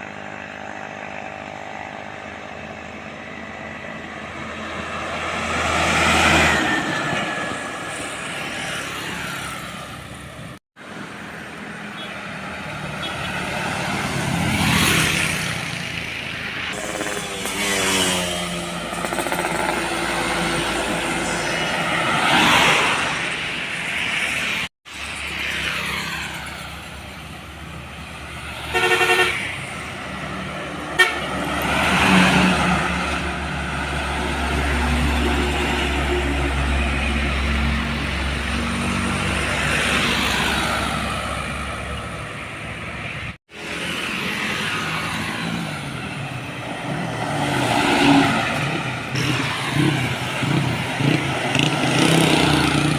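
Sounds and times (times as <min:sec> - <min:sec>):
heavy trucks driving past: 0:00.0 - 0:52.9
horn blast: 0:31.0 - 0:32.2.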